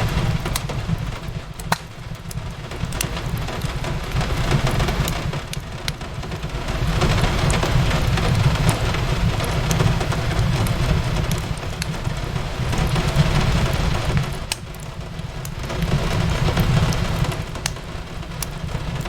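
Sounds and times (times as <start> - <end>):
rain on a window: 0.0 - 19.0
wood fire crackling: 0.0 - 19.0.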